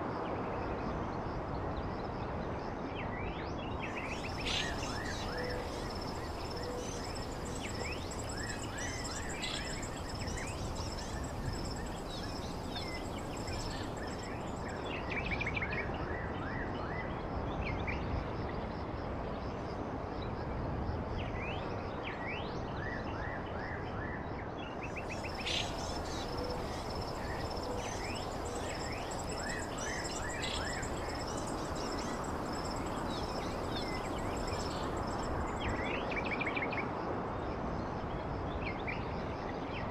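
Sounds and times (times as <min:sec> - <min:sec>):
songbirds chirping: 0:03.6 - 0:15.6, 0:24.7 - 0:36.4
background hiss: 0:03.9 - 0:15.0, 0:24.9 - 0:36.0
thin high steady tone: 0:25.2 - 0:35.6.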